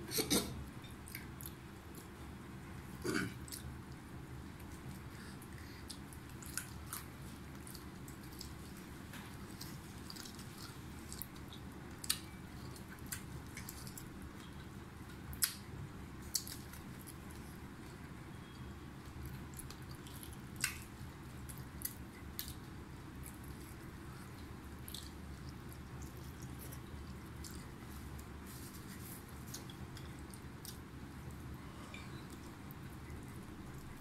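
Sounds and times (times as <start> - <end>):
low background hum: 0.0 - 34.0
people chewing: 3.0 - 15.6, 19.0 - 30.9.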